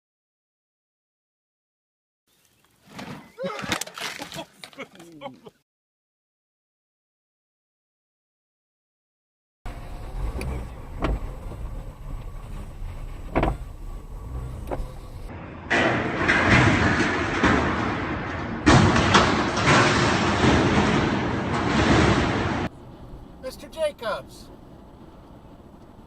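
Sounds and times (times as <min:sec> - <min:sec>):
rough road noise: 0:02.3 - 0:05.5, 0:09.7 - 0:26.0
car engine and road rumble: 0:09.7 - 0:26.0.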